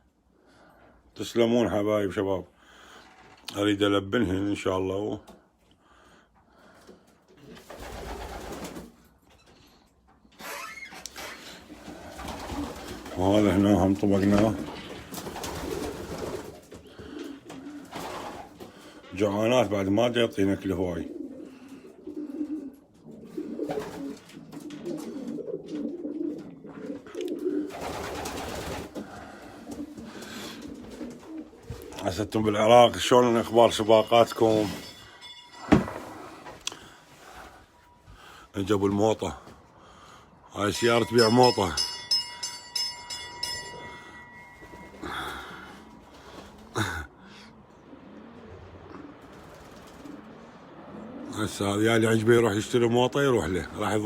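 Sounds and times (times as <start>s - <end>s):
pigeons cooing: 11.4s - 13.7s, 14.5s - 19.1s, 20.6s - 33.8s, 43.6s - 52.1s
ice cream van chime jingle: 33.2s - 36.3s, 40.6s - 46.0s.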